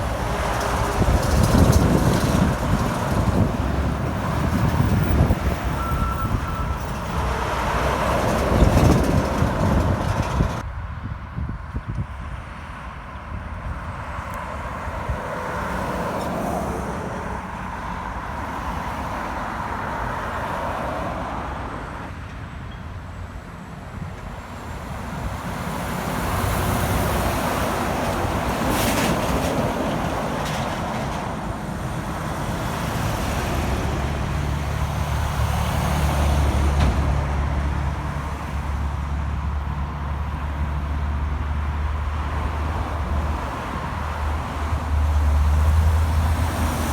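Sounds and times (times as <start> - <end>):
diesel engine droning: 0.0 - 11.6
heavy trucks driving past: 0.0 - 11.6, 12.2 - 46.9.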